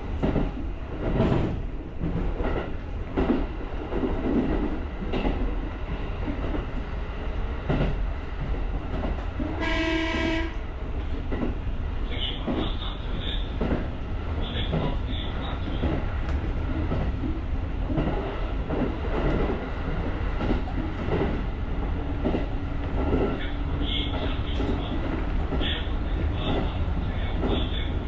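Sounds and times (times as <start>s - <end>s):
train rumbling: 0.0s - 28.0s
train horn short note: 9.6s - 10.6s.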